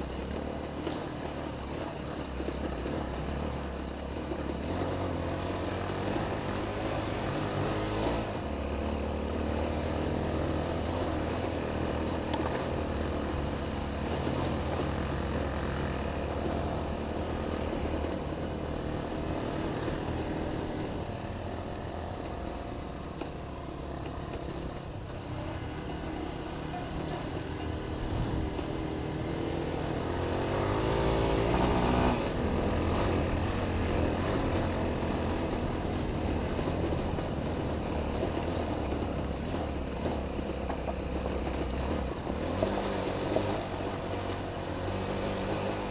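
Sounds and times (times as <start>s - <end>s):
dirt bike engine revving: 25.4s - 35.7s.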